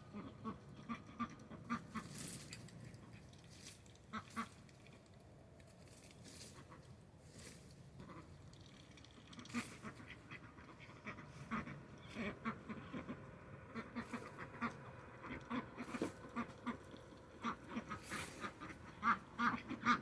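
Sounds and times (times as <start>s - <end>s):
ducks quacking: 0.0s - 3.4s, 4.0s - 4.6s, 8.0s - 20.0s.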